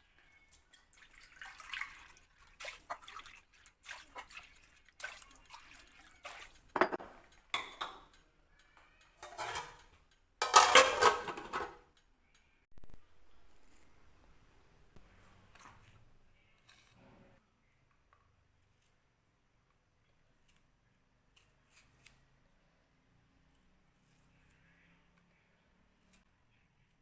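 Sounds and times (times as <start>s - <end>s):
water splashing: 0.9s - 6.7s
dishes and pots clattering: 6.2s - 8.2s, 9.2s - 11.9s.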